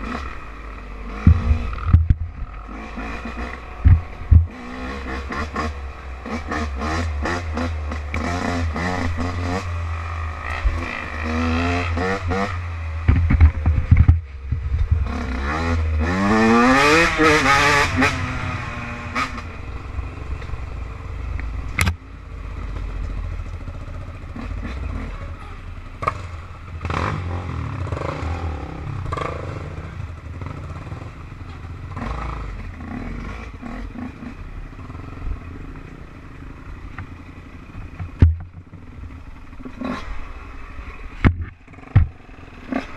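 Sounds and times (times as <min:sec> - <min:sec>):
off-road engine revving: 0:00.0 - 0:42.9
low rumble: 0:12.7 - 0:15.9.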